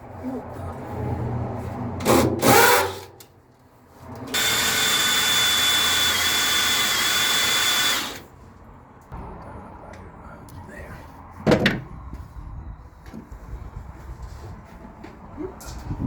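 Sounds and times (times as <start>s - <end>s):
power drill whining: 4.3s - 8.3s
handling and rubbing noise: 13.1s - 16.0s.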